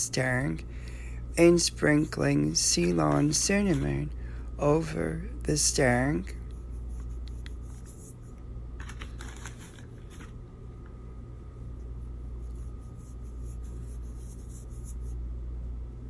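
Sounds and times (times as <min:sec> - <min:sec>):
low hum: 0:00.0 - 0:16.0
spice shaker rattling: 0:08.8 - 0:10.3.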